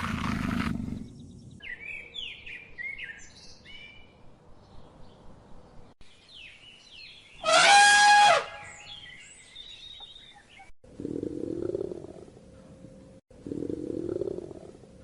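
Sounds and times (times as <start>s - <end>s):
low rough animal roar: 10.9s - 12.4s, 13.3s - 15.0s.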